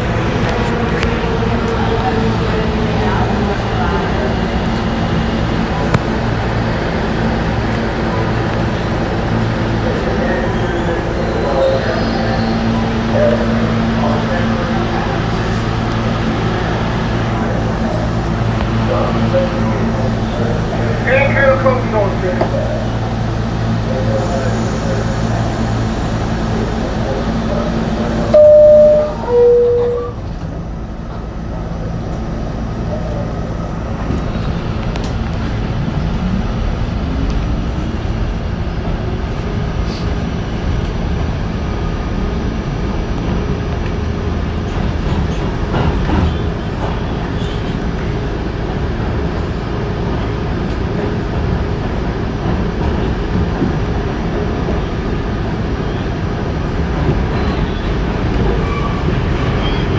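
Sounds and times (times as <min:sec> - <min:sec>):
wheel and rail rumble: 0:00.0 - 0:59.9
subway door chime: 0:28.1 - 0:30.5.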